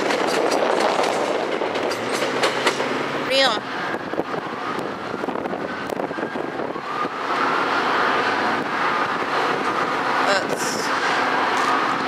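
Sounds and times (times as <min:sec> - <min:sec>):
train wheels clattering on rails: 0:00.0 - 0:03.6.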